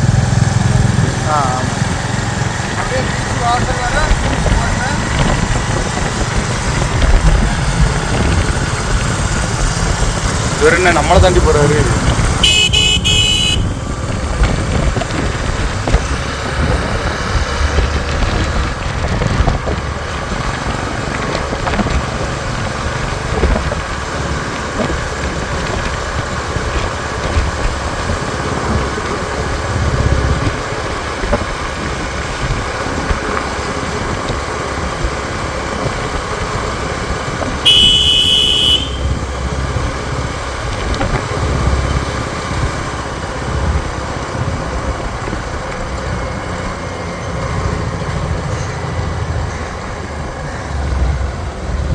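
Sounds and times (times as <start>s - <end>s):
motorcycle engines running: 0.0s - 51.9s
road and wind noise: 0.0s - 51.9s
vehicle horn honking: 12.4s - 13.9s, 37.6s - 39.3s.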